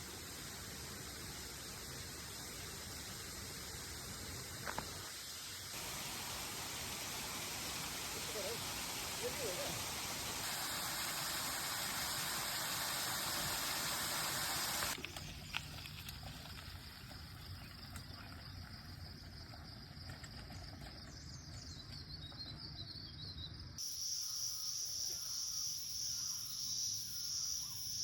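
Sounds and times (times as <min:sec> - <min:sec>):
high insect drone: 0:23.8 - 0:28.0.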